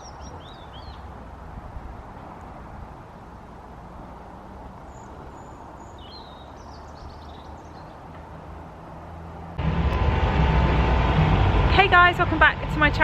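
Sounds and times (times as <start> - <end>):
birds chirping: 0.0 - 9.6
distant engine drone: 0.0 - 13.0
loud close rumble: 9.6 - 13.0.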